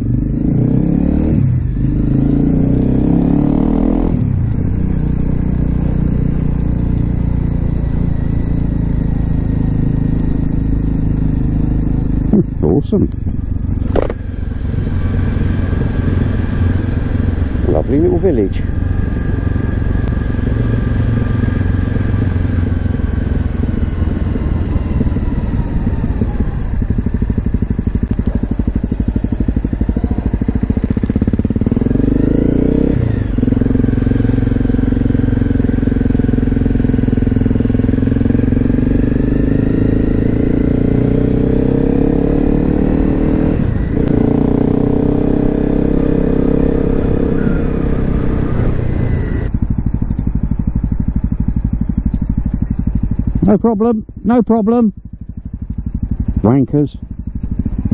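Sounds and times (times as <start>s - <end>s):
motorcycle engine accelerating: 0.0s - 57.9s
gear changes: 1.3s - 57.9s.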